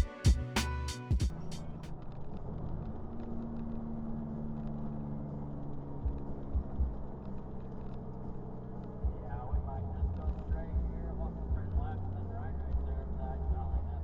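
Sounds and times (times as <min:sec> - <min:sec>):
road rumble: 0:00.2 - 0:14.0
diesel truck engine drone: 0:00.3 - 0:14.0
low thumps: 0:09.0 - 0:13.1.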